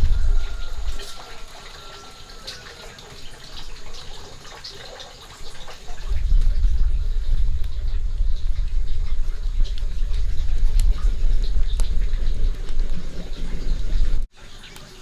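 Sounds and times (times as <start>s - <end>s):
water running and splashing: 0.0s - 15.0s
small drips and clicks: 0.2s - 15.0s
loud low rumble: 6.1s - 14.2s.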